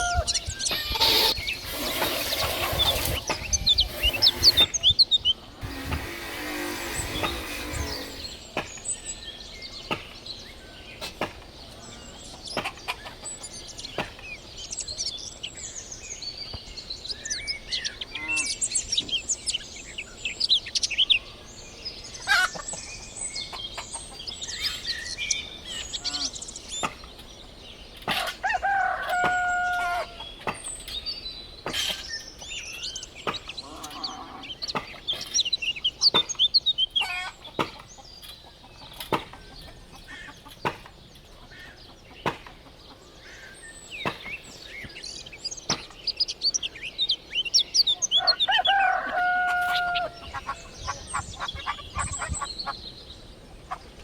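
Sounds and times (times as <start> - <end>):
birds chirping: 0.0 - 54.0
sharp knocks: 5.6 - 8.9.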